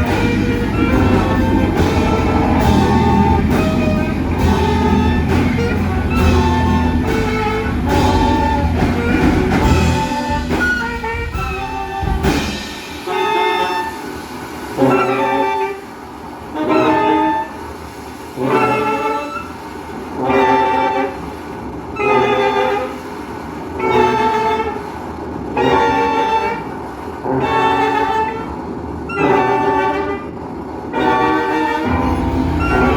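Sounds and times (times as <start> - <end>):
ensemble playing with heavy bass: 0.0 - 13.5, 31.8 - 32.9
loud sustained chords: 0.0 - 15.2, 31.8 - 32.9.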